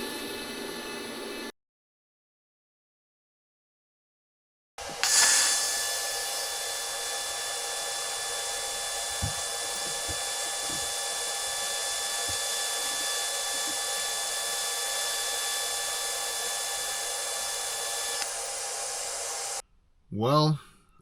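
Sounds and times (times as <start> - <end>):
welding arc hissing: 4.9 - 19.6.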